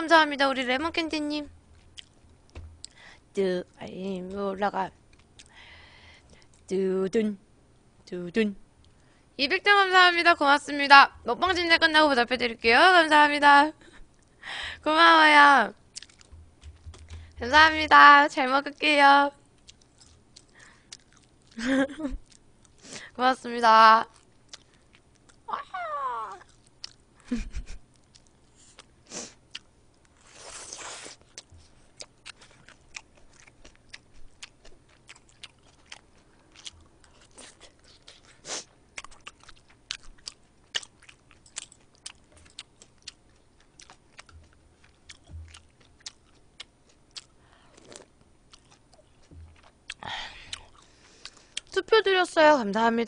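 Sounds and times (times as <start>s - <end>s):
close chewing with mouth clicks: 1.7s - 3.0s, 5.0s - 5.6s, 15.9s - 17.4s, 19.5s - 21.6s, 24.1s - 25.5s, 26.4s - 27.1s, 27.8s - 51.8s.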